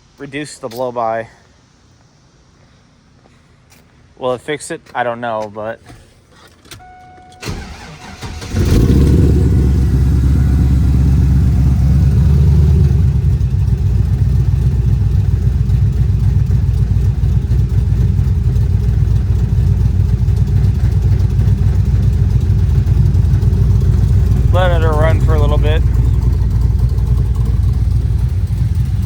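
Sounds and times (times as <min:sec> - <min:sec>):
car engine cranking and idling: 0:06.7 - 0:29.0.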